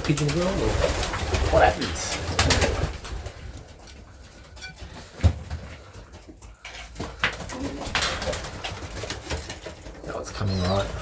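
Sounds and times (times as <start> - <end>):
pigeons cooing: 7.1 - 11.0.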